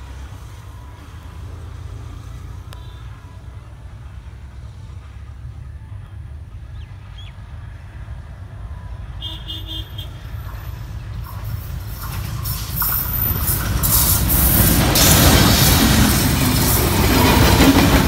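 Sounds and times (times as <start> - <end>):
diesel train rumble and wheel noise: 0.0 - 18.0.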